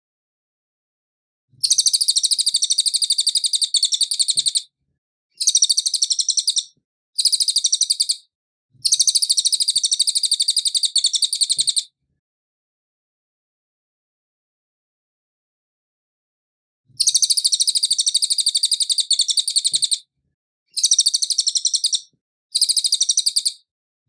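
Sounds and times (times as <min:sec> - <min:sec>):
songbird high-pitched trills: 0:05.4 - 0:08.2, 0:17.0 - 0:20.0, 0:20.7 - 0:23.6.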